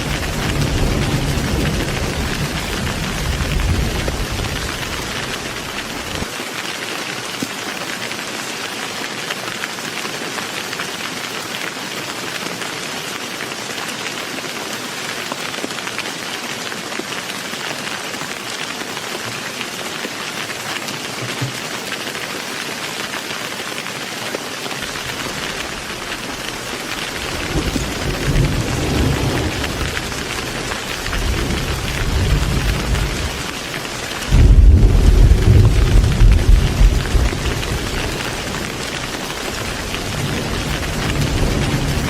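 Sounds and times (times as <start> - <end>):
thunder rumbling: 0.0 - 6.2, 24.8 - 42.0
heavy rain pouring: 0.0 - 42.0.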